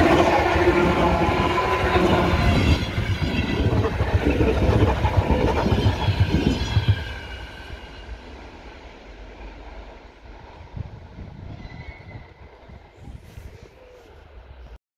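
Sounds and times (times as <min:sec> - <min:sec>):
train wheels rumbling and knocking: 0:00.0 - 0:13.2.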